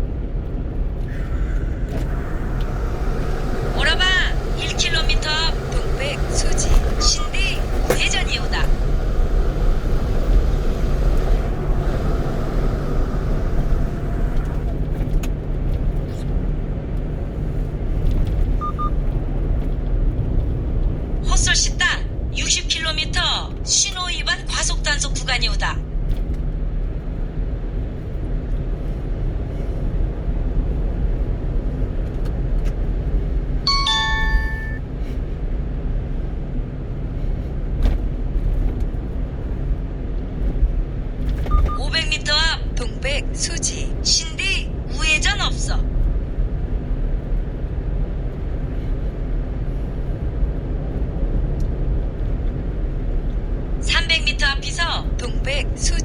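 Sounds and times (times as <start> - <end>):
truck engine rumble inside cab: 0.0 - 56.0
two-note electronic chime: 33.7 - 34.8.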